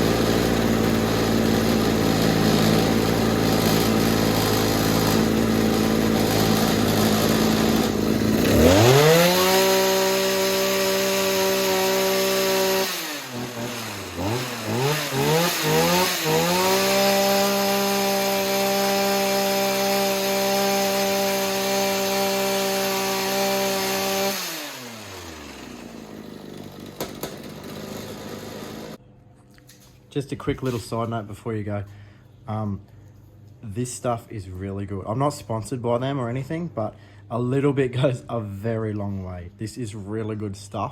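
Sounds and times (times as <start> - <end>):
hedge trimmer engine revving: 0.0 - 29.0.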